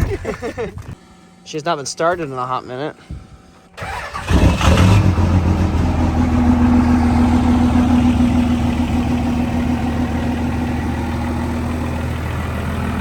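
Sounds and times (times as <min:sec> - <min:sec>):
vehicle engine starting and idling: 0:03.8 - 0:13.0.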